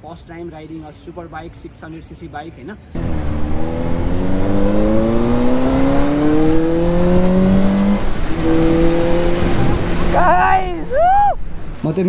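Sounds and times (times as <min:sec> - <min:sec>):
motorcycle engine accelerating: 0:03.0 - 0:11.8.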